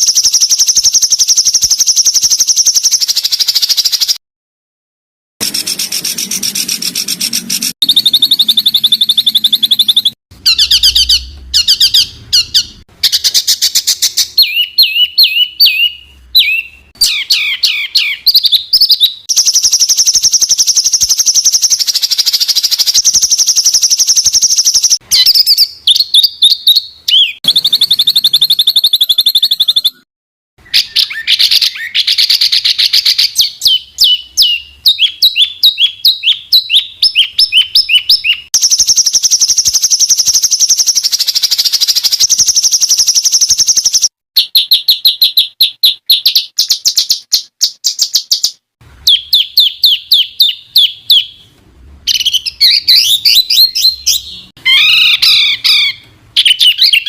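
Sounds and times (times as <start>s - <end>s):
high buzzing bird trill: 5.4s - 30.0s
songbirds chirping and trilling: 5.4s - 57.0s.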